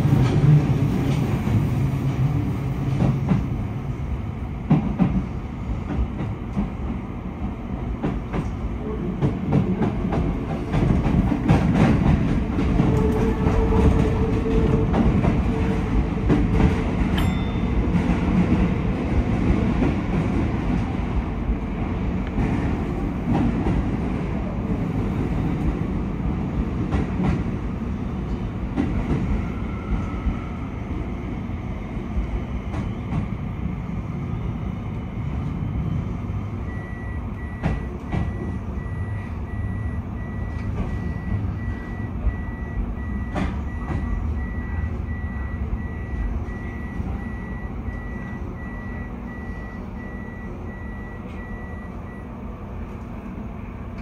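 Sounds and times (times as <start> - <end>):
electric train rumbling: 0.0 - 54.0
thin electronic beep: 36.7 - 52.3.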